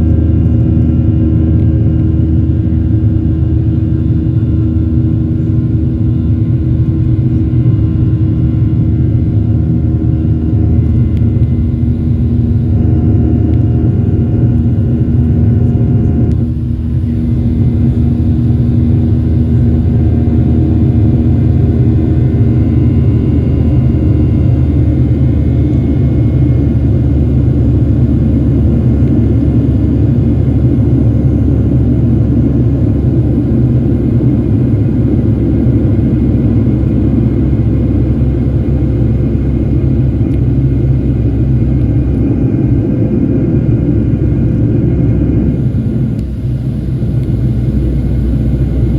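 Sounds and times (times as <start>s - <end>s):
jet engine cabin rumble: 0.0s - 48.9s.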